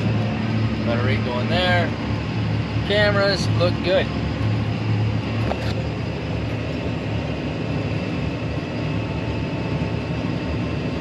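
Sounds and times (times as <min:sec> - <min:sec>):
tractor diesel engine droning: 0:00.0 - 0:11.0.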